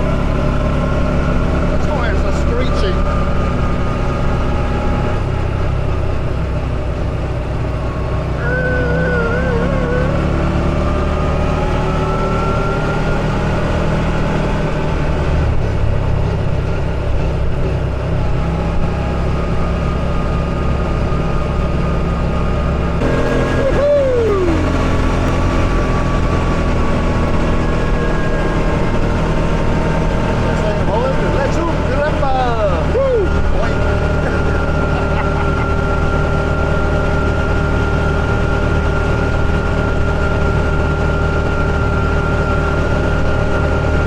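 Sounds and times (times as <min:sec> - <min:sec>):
buggy engine running: 0:00.0 - 0:44.0
short falling tone: 0:23.0 - 0:29.5.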